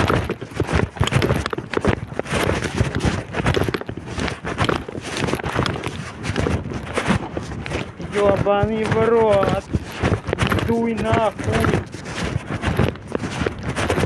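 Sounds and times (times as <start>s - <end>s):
wind buffeting microphone: 0.0s - 14.0s
footsteps knocking: 7.7s - 12.0s.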